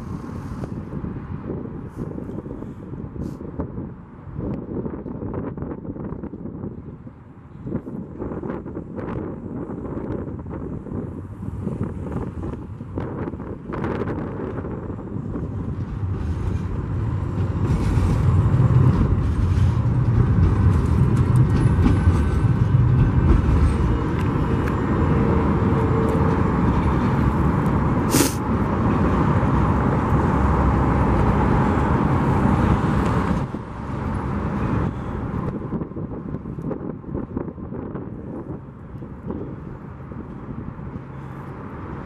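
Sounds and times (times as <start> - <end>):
train wheels rumbling on rail: 0.0 - 42.0.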